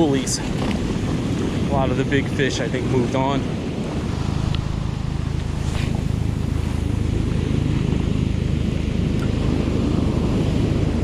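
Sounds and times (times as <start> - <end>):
helicopter rotor throb: 3.4 - 11.0.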